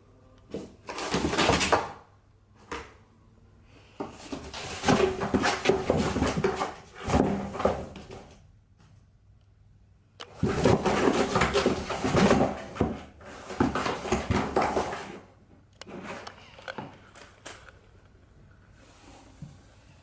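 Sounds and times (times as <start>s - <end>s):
rustling and knocking handling noises: 4.0s - 8.4s, 10.3s - 15.3s.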